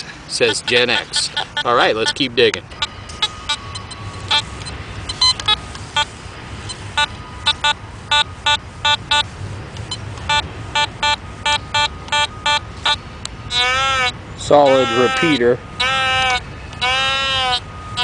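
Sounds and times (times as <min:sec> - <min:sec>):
metal detector beeps: 0:00.3 - 0:13.9.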